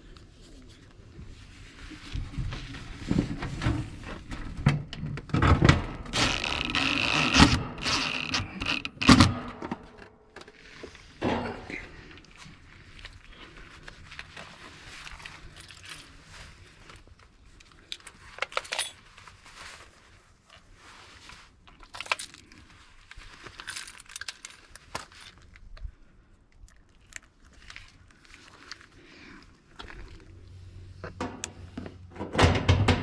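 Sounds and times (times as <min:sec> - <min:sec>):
small metallic clinks and rattles: 0:15.1 - 0:16.2, 0:17.9 - 0:19.1, 0:23.4 - 0:25.6.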